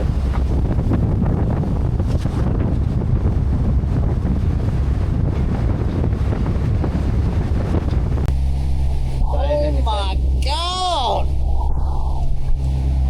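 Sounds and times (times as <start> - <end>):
big waves rushing: 0.0 - 13.0
wind buffeting microphone: 0.0 - 13.0
steady low hum: 8.1 - 13.0.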